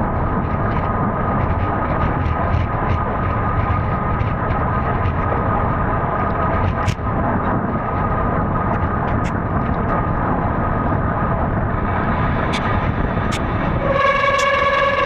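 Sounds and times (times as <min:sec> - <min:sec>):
rolling noise of a ride: 0:00.0 - 0:15.0
rushing wind: 0:00.0 - 0:15.0
sharp clicks: 0:12.5 - 0:12.7.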